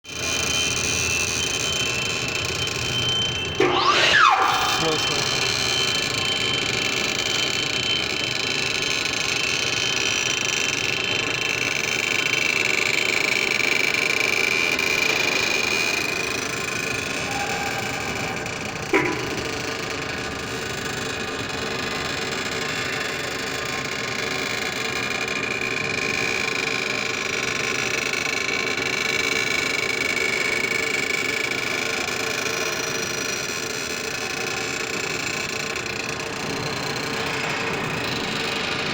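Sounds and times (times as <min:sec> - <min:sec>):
overhead crane running: 0:00.1 - 0:38.9
high whine: 0:00.2 - 0:11.4, 0:14.6 - 0:20.8, 0:36.4 - 0:38.9.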